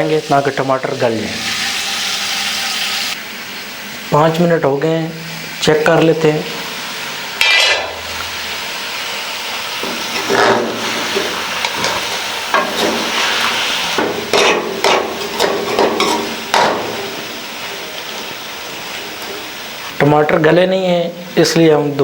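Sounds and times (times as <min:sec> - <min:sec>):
food sizzling in a pan: 0:00.0 - 0:04.5, 0:05.1 - 0:19.9
spatula scraping a pan: 0:07.4 - 0:08.0, 0:09.8 - 0:17.1
lid clanking: 0:07.4 - 0:08.1, 0:09.8 - 0:17.4.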